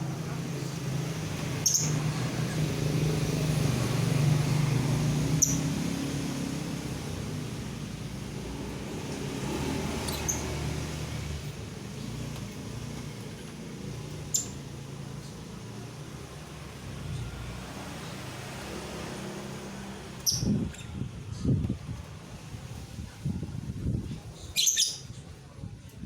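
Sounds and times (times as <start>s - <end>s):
bird chirping: 1.5s - 2.1s, 5.2s - 5.9s, 9.5s - 10.7s, 14.2s - 15.4s, 24.6s - 25.0s.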